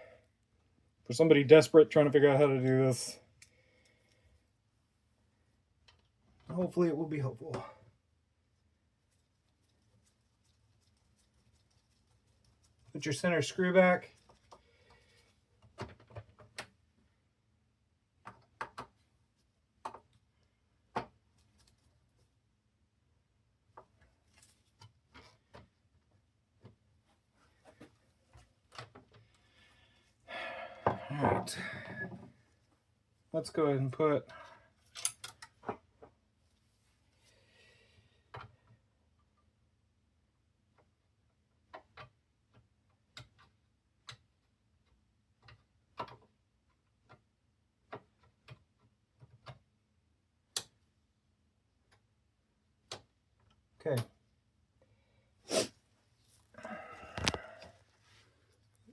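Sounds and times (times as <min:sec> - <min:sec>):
tools and small parts clicking: 0:34.9 - 0:35.6.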